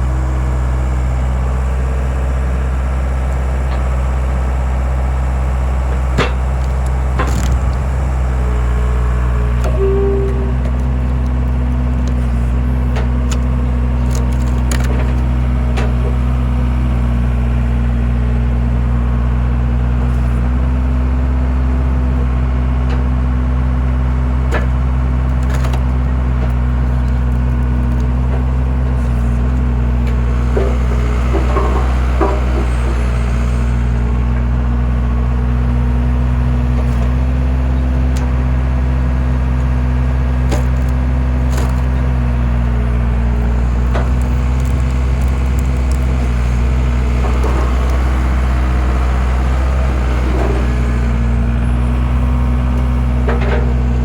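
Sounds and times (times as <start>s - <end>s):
skid steer engine running: 0.0s - 54.0s
wood cracking: 5.9s - 16.9s, 24.5s - 29.7s, 39.4s - 51.3s
wood creaking: 6.2s - 16.2s, 40.4s - 54.0s.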